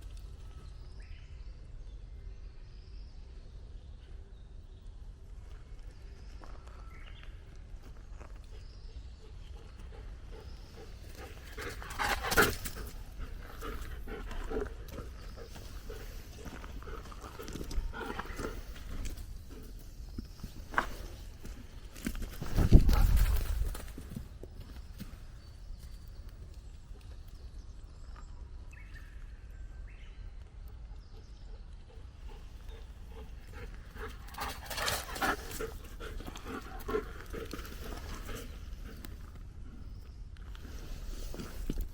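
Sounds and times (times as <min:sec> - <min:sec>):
dog panting softly: 0:09.2 - 0:19.9, 0:31.1 - 0:39.2
footsteps on forest floor: 0:10.3 - 0:25.3, 0:33.2 - 0:39.4
wind rumble on microphone: 0:10.6 - 0:25.7.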